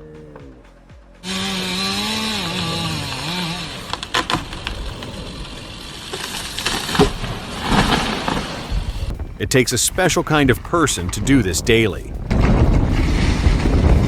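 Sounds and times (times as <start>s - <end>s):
chainsaw cutting wood: 1.2s - 9.2s
wood cracking: 1.2s - 14.0s.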